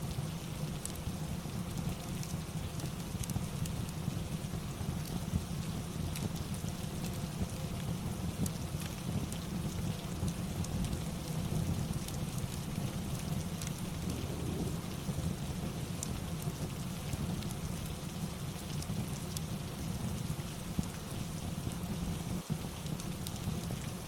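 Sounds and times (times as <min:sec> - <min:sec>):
steady rain: 0:00.0 - 0:24.0
fireplace crackling: 0:06.2 - 0:22.0
low rumble: 0:13.7 - 0:16.4.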